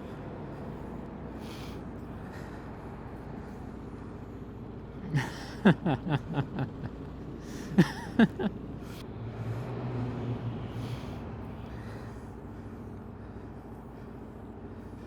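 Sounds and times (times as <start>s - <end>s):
person chuckling: 5.0s - 8.5s.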